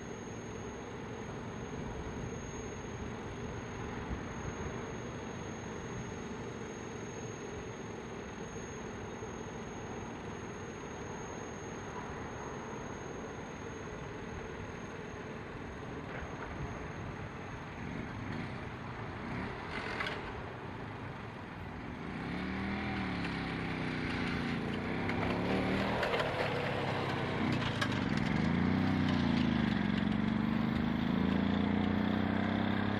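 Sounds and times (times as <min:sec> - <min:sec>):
vehicle engines accelerating: 0:17.7 - 0:32.9.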